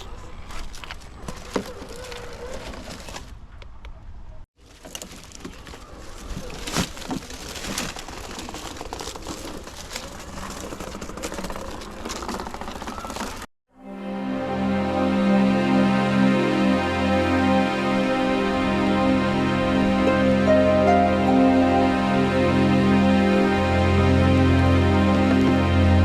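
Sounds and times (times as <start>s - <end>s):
tyres crunching and clicking: 0.0s - 4.0s, 4.6s - 13.5s.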